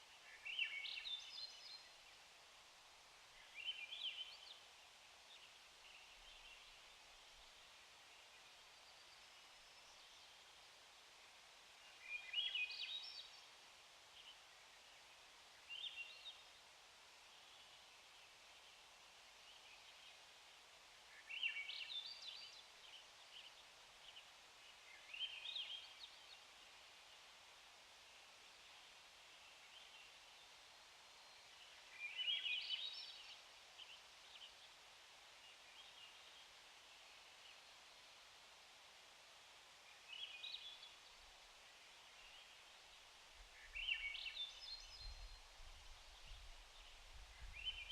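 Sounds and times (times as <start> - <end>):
faint steady hiss: 0.0 - 47.9
small songbird singing: 0.1 - 2.3, 3.3 - 7.5, 11.7 - 13.5, 14.2 - 16.6, 21.1 - 26.7, 28.6 - 34.8, 39.6 - 47.9.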